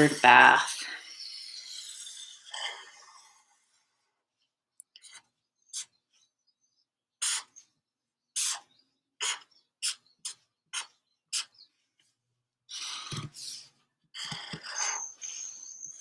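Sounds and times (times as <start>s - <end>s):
marker squeaking on paper: 0.0s - 3.3s, 5.0s - 6.3s, 7.2s - 7.8s, 8.4s - 11.8s, 12.7s - 16.0s.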